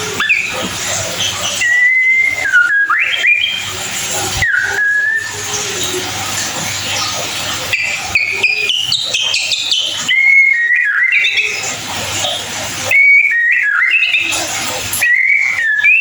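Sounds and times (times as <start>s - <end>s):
bird whistling song: 0.0s - 16.0s.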